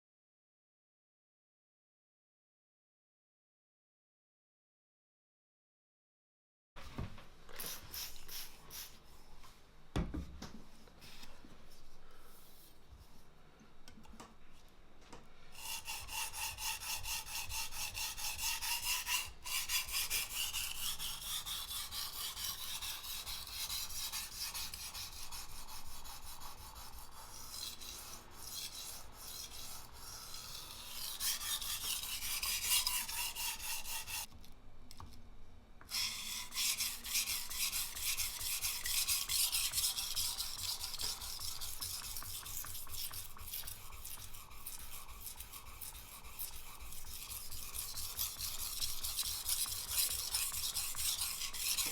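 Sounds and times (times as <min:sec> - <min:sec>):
knife scraping on whetstone: 0:15.6 - 0:34.3, 0:35.9 - 0:51.9.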